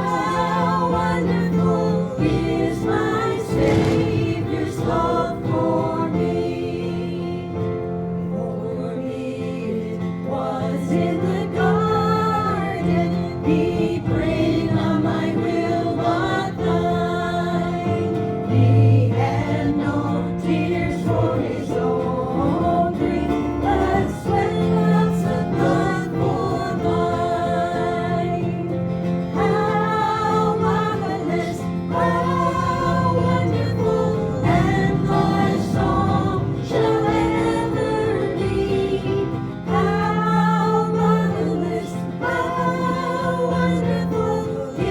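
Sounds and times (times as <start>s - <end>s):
group singing a hymn: 0.0s - 44.9s
instrumental accompaniment with bass: 10.4s - 44.9s.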